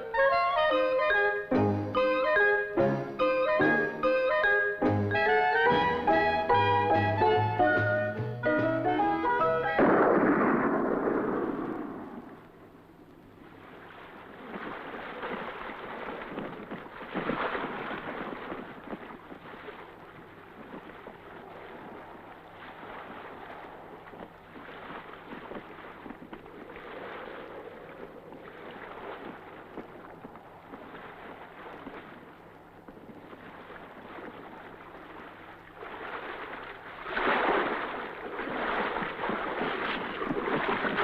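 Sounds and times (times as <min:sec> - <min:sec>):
jazzy brass music: 0:00.5 - 0:09.8
sea waves surging: 0:09.0 - 0:41.0
rush of water and wind: 0:09.6 - 0:41.0.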